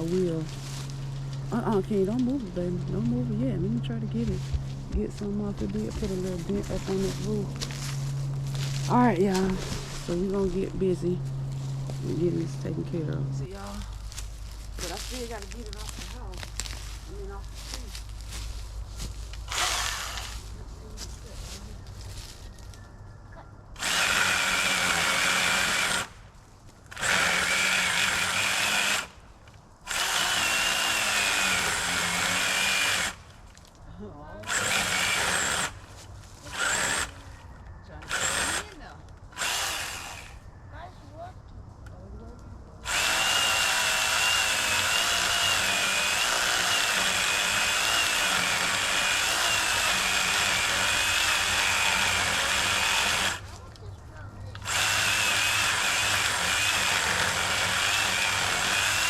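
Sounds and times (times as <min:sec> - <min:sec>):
electric power tool motor whine: 0:19.5 - 0:20.4, 0:23.8 - 0:26.1, 0:26.9 - 0:29.1, 0:29.9 - 0:33.2, 0:34.4 - 0:35.8, 0:36.5 - 0:37.2, 0:38.0 - 0:40.4, 0:42.8 - 0:53.4, 0:54.6 - 0:59.0.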